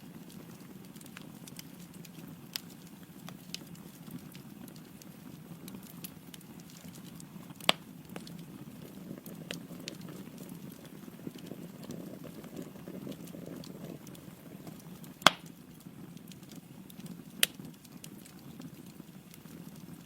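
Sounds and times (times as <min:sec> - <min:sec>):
fire crackling: 0:00.0 - 0:20.0
low rush of flame: 0:00.0 - 0:20.0
loud pop from fire: 0:15.2 - 0:15.5.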